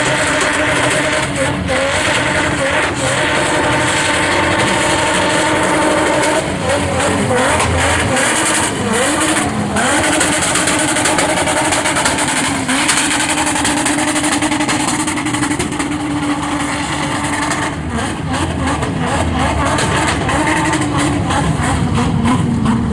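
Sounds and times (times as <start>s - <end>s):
car engine at high revs: 0.0s - 22.9s.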